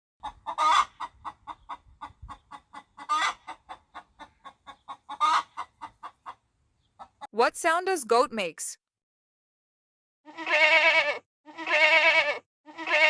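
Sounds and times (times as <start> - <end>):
chicken squawks: 0.2 - 6.4, 10.2 - 13.0
chicken clucking: 0.2 - 7.3.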